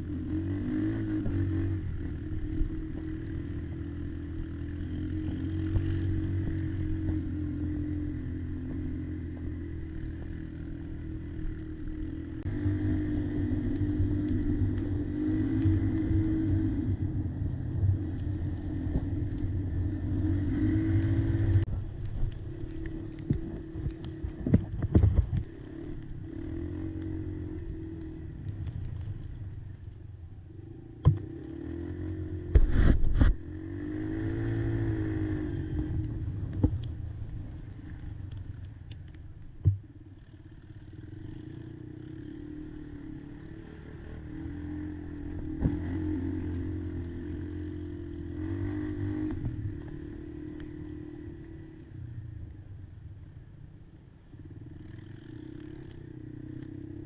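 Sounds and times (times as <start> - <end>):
quad bike engine revving: 0.0 - 17.6, 18.2 - 21.7, 25.3 - 28.6, 30.6 - 36.4, 40.4 - 52.0, 54.5 - 57.0.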